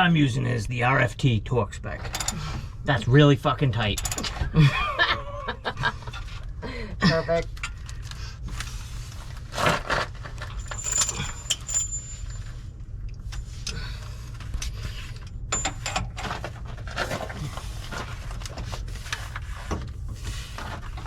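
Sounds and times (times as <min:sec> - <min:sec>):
metal hand tools clinking: 0:04.0 - 0:04.4, 0:10.6 - 0:12.4
high metallic rings: 0:10.6 - 0:12.6, 0:15.5 - 0:16.0.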